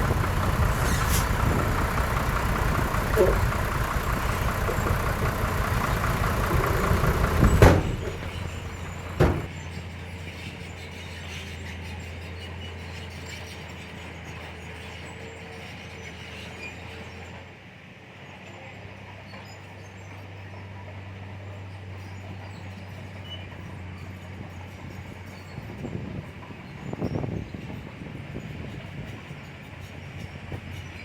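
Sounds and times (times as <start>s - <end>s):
heavy diesel engine running: 0.0s - 9.6s
sharp bang: 5.6s - 9.5s.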